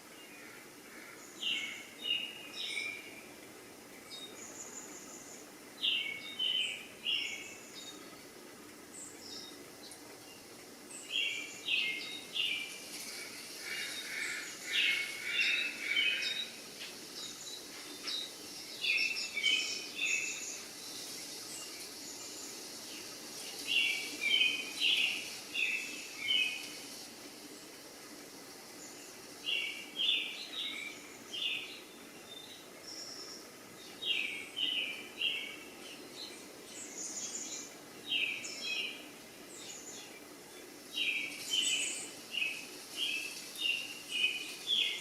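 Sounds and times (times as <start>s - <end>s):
faint background hum: 0.0s - 45.0s
small bird chirping: 9.0s - 27.1s.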